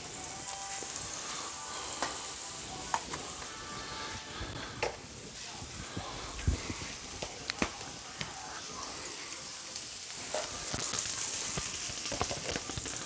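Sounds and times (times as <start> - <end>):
food sizzling on a griddle: 0.0 - 13.0
utensils clicking against griddle: 1.8 - 3.6, 10.1 - 13.0.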